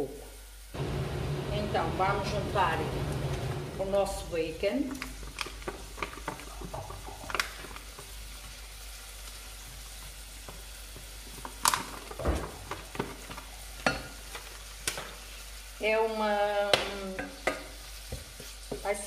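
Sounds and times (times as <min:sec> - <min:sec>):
meat sizzling in a pot: 0:00.0 - 0:19.0
utensil stirring and knocking pot: 0:04.9 - 0:15.2, 0:16.6 - 0:19.0.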